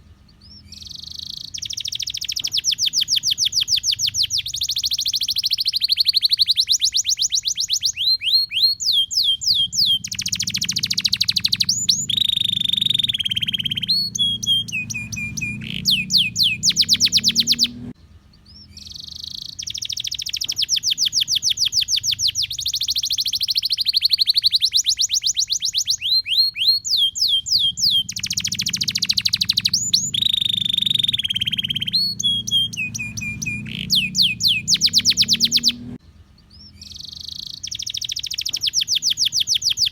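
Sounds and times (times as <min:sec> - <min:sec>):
canary singing rolling trills: 0:00.0 - 0:39.9.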